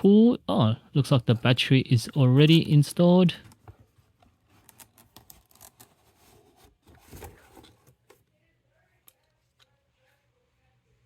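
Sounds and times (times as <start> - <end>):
clicks and rustles of handling: 3.4 - 8.3.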